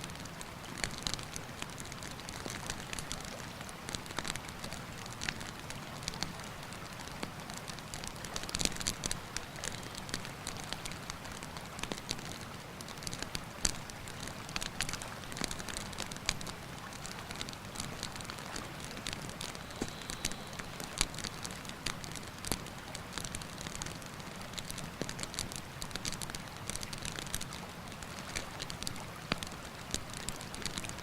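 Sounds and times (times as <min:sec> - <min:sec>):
campfire crackling and popping: 0:00.1 - 0:31.0.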